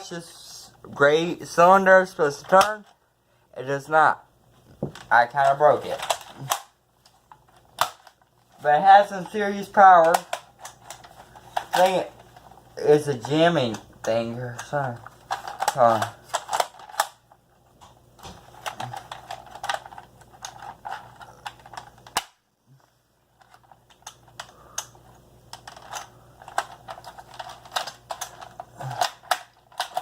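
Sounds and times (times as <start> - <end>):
plastic toy clicks and rattles: 9.0 - 12.4, 13.0 - 17.3, 18.6 - 22.3, 25.5 - 30.0.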